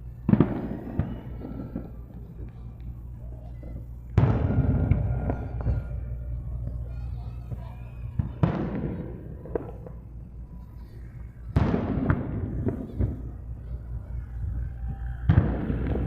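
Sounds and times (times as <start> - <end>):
fireworks booming: 0.0 - 16.0
fireworks crackling: 0.0 - 16.0
rolling rumble: 0.0 - 16.0.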